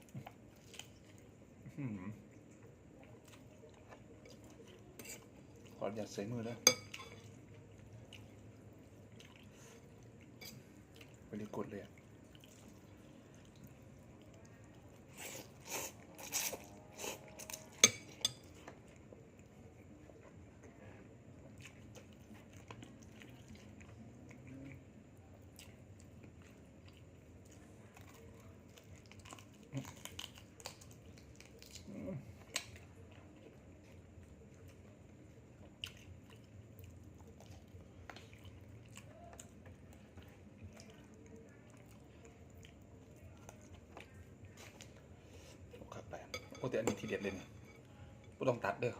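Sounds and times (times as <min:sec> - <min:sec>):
person chewing and crunching food: 0:00.0 - 0:06.0, 0:07.2 - 0:46.0
cutlery and dishes clinking: 0:06.6 - 0:07.4, 0:17.4 - 0:18.8, 0:46.3 - 0:47.9.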